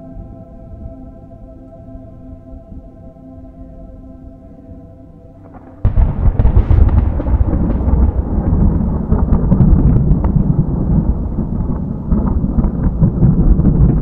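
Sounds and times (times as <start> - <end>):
deep rumbling with crackles: 5.3 - 14.0.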